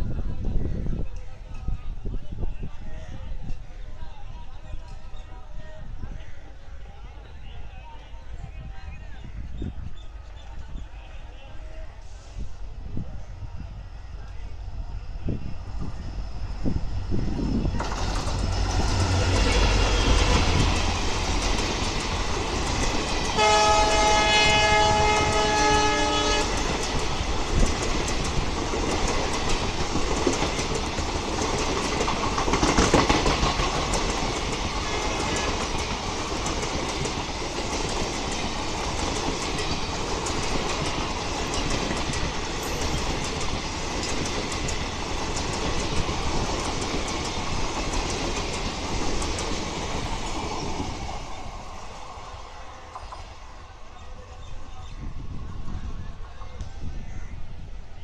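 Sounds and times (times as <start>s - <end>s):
train wheels rumbling on track: 0.0s - 58.0s
multi-tone train horn: 23.4s - 26.8s.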